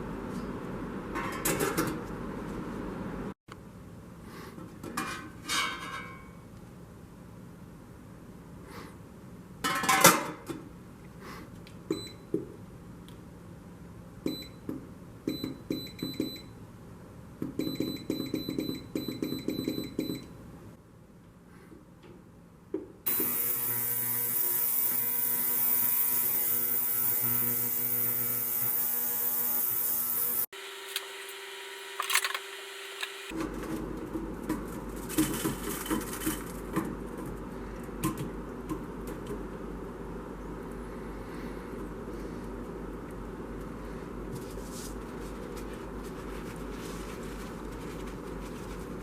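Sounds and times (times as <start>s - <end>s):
small electric motor running: 23.1s - 33.4s.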